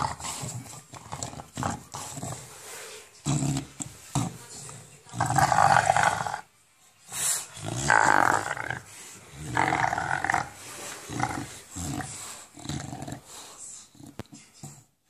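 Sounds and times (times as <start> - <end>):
dog grunting: 0.0 - 2.5, 7.5 - 14.9
dog play-growling: 0.0 - 2.6, 3.2 - 6.5, 7.4 - 14.9.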